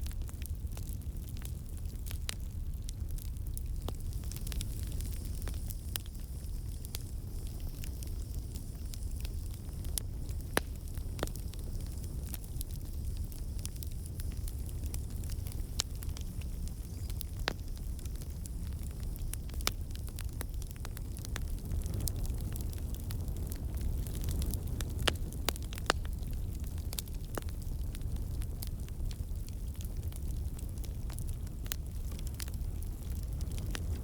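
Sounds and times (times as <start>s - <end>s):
campfire crackling: 0.0s - 34.0s.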